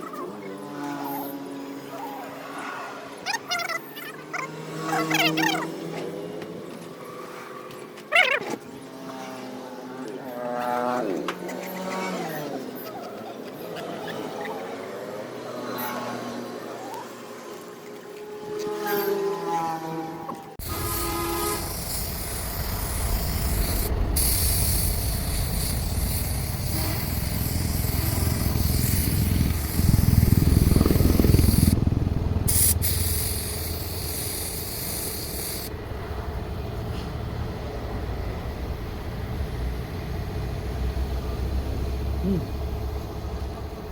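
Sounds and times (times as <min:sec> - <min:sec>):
air spray gun hissing: 0:20.6 - 0:35.8
low machinery rumble: 0:20.6 - 0:43.9.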